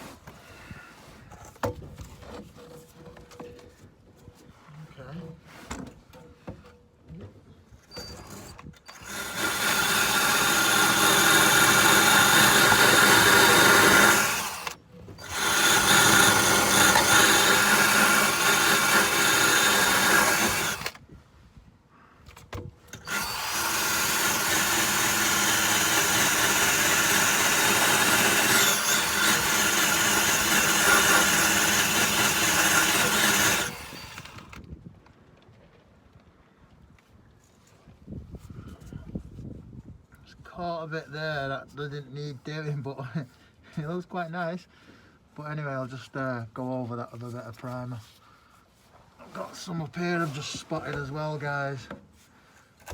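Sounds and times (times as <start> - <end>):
power drill scrubbing rust: 8.0 - 21.0, 22.9 - 34.6, 49.3 - 51.9.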